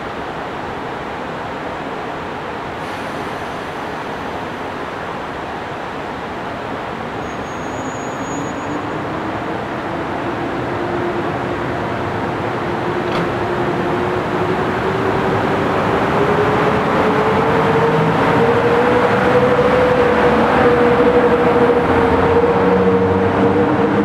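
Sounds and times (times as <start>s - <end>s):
train wheels rumbling on rails: 7.3s - 24.0s.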